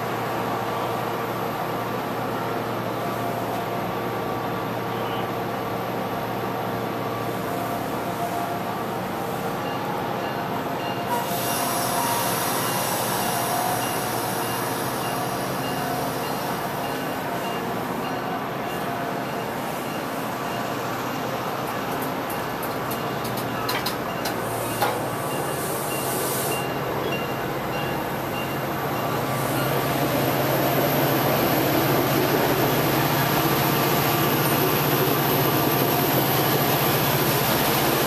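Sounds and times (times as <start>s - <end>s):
train mechanical hum: 0.0s - 38.0s
high hiss: 24.4s - 26.9s.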